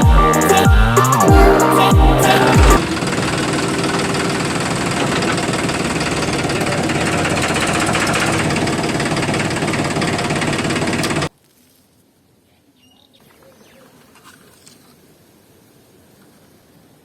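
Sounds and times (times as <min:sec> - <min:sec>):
small electric motor running: 0:02.8 - 0:11.3.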